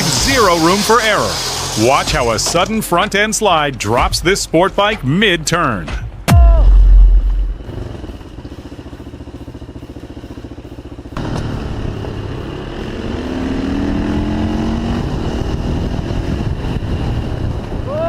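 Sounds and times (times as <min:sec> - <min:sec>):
motorcycle engine accelerating: 0:06.3 - 0:17.9.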